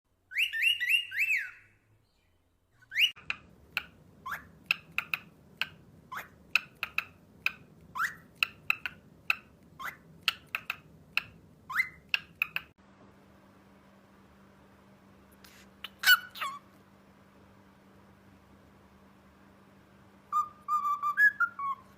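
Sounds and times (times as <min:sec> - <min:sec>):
cockatiel whistling rising notes: 0:00.3 - 0:01.8, 0:02.8 - 0:03.2, 0:20.3 - 0:21.9
cockatiel chirping: 0:00.3 - 0:12.7, 0:15.8 - 0:16.6, 0:20.3 - 0:21.9.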